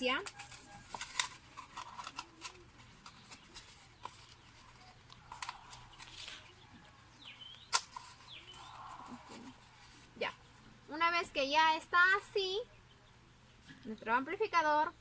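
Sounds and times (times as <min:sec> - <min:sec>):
cardboard tubes and cups clicking: 0:00.0 - 0:09.6.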